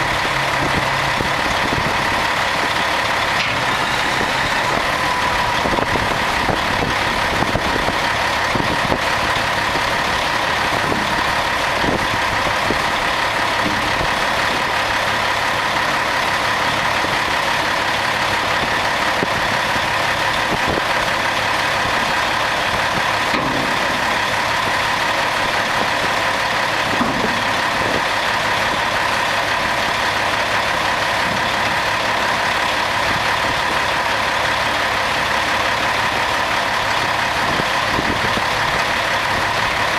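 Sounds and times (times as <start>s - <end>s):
steady whine: 0.0s - 18.5s
diesel engine idling: 0.0s - 39.9s.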